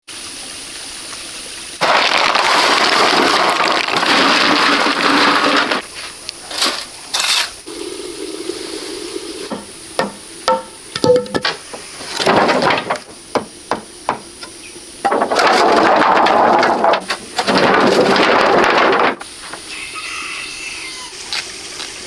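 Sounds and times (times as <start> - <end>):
loud rushing noise: 7.7 - 10.0
sharp knocks: 9.5 - 19.2.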